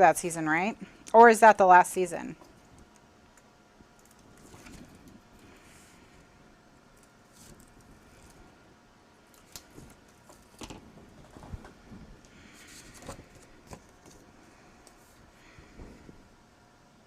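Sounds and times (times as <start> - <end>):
paper rustling: 4.2 - 5.2.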